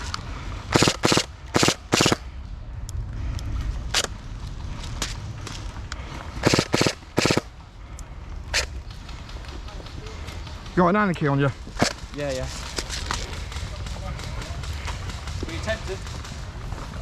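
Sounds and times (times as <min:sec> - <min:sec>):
airsoft gun automatic bursts: 0:00.7 - 0:02.2, 0:06.4 - 0:07.5.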